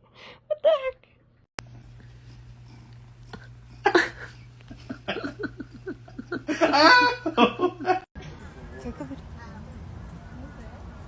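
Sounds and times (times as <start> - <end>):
low steady hum: 1.6 - 11.0
person laughing: 3.8 - 8.1.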